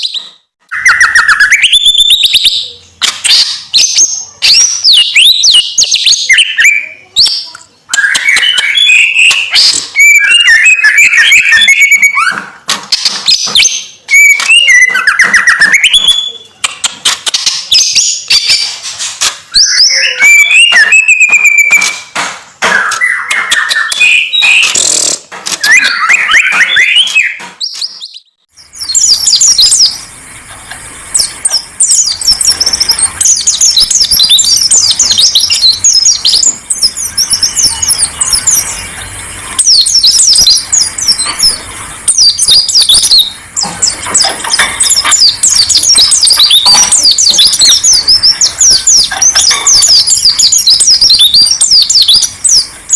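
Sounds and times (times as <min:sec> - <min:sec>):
songbird whistled phrases: 0:00.0 - 0:12.4, 0:13.4 - 0:16.5, 0:19.5 - 0:22.1, 0:31.2 - 0:52.7
high rapid bird chirps and trills: 0:00.0 - 0:52.9.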